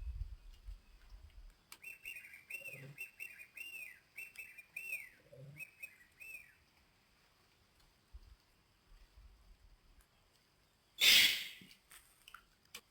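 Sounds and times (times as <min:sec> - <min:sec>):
bird chirping: 0:01.7 - 0:06.6, 0:11.0 - 0:11.7.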